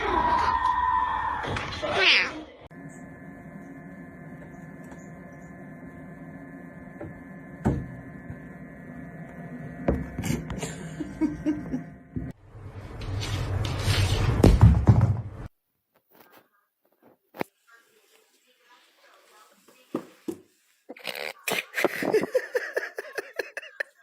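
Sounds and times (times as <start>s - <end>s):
steady electrical hum: 2.7s - 12.4s.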